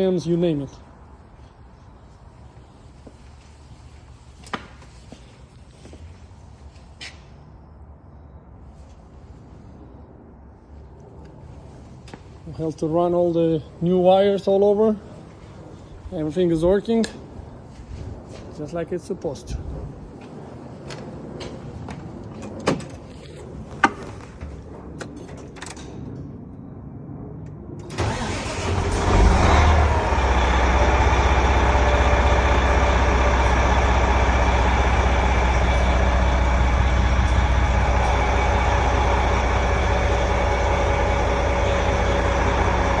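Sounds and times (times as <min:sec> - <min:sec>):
diesel truck engine starting and idling: 0:27.8 - 0:43.0.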